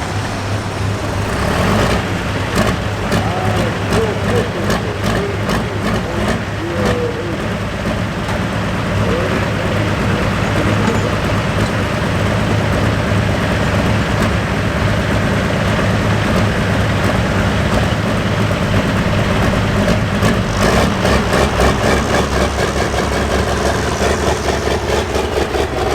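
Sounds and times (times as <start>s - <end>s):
regular pulsing beat: 0.0s - 14.7s
tractor diesel engine running: 0.0s - 25.9s.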